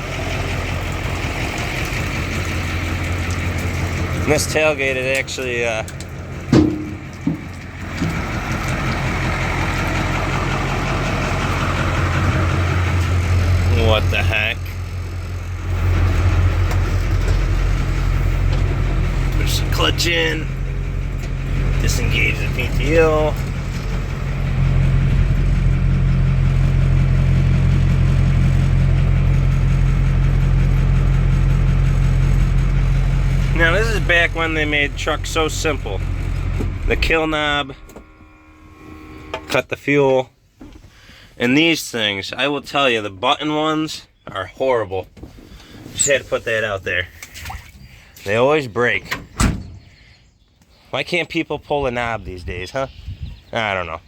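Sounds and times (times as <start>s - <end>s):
hydraulic pump running: 0.0s - 39.6s
truck engine idling: 0.0s - 39.7s.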